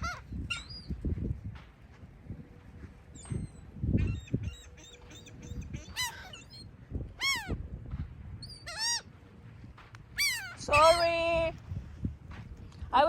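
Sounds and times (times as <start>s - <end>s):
gulls calling: 3.1s - 7.6s, 10.1s - 11.2s.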